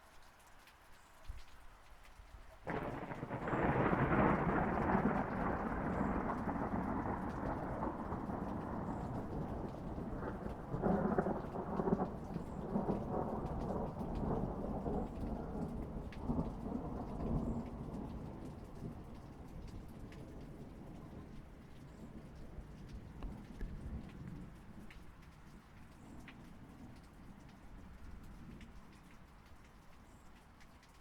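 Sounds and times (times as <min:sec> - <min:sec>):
steady rain: 0:00.0 - 0:31.0
thunder rumbling: 0:02.7 - 0:24.9.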